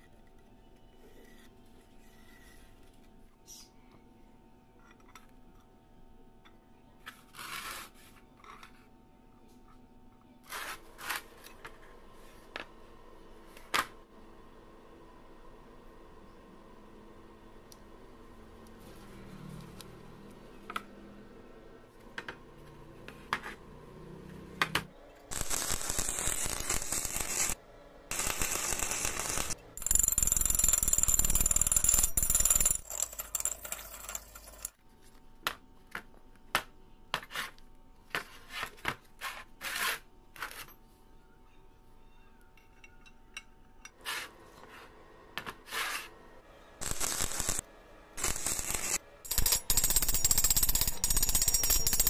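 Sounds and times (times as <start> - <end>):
noisy metalworking machine: 25.1 - 34.8, 46.8 - 52.0.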